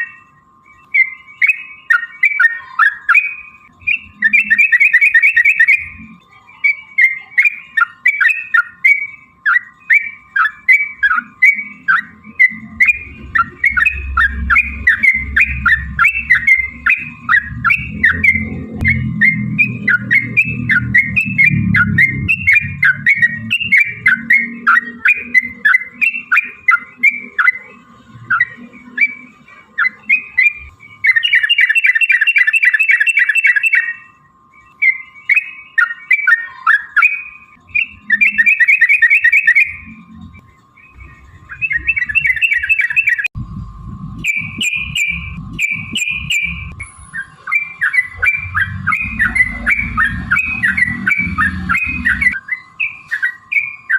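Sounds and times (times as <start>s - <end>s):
bird rolling trills: 0.0s - 34.2s, 44.0s - 53.9s
bulbuls chirping: 0.0s - 53.9s.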